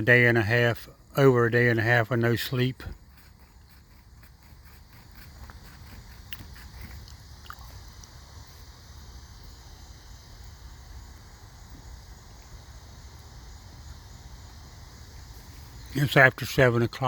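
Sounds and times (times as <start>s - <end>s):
high insect hiss: 0.0s - 17.0s
raccoon crunching food: 2.8s - 8.2s.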